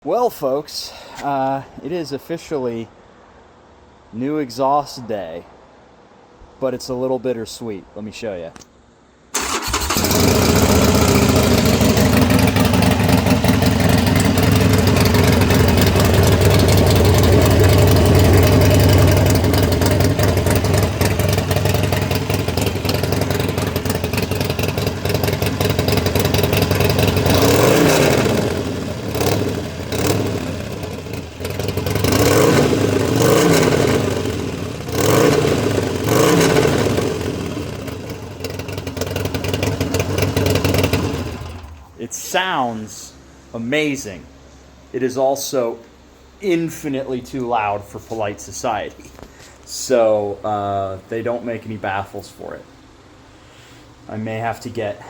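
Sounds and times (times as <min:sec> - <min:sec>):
motorcycle engine idling and revving: 0:09.4 - 0:41.9.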